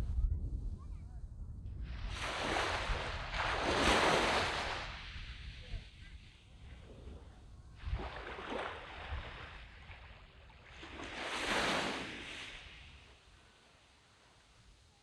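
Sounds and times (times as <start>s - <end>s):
sea waves breaking on beach: 1.9s - 7.2s, 7.8s - 14.2s.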